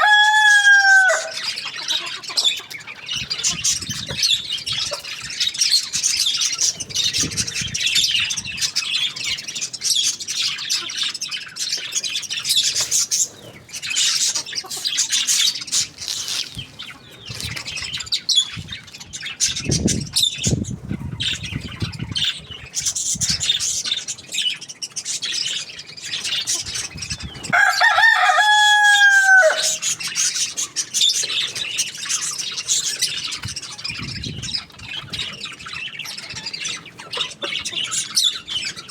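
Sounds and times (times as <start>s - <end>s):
rooster crowing: 0.0s - 1.4s, 27.5s - 29.8s
flock of birds chirping: 0.0s - 38.9s.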